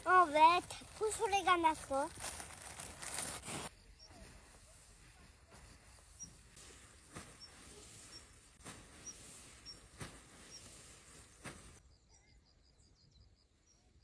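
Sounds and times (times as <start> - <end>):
small bird chirping: 5.8 - 10.8, 11.8 - 14.0.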